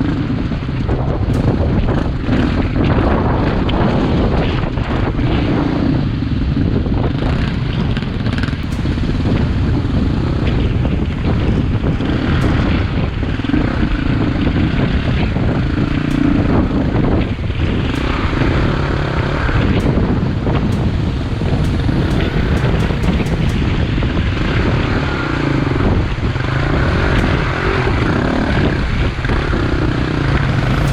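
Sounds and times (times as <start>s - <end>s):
wind rushing over microphone: 8.2s - 25.2s
dirt bike engine: 8.4s - 23.8s, 29.4s - 30.9s.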